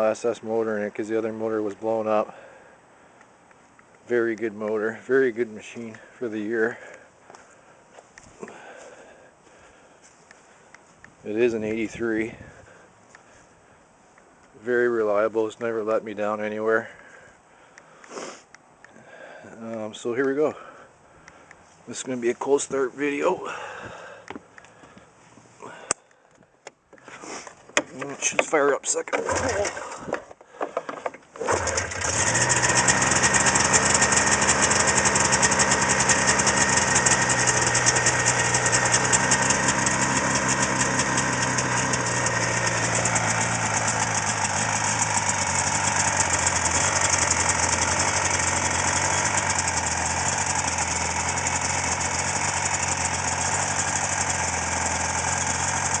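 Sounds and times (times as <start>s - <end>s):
two-stroke snowmobile engine idling: 4.1s - 7.6s, 8.4s - 10.6s, 29.2s - 30.8s, 31.4s - 56.0s.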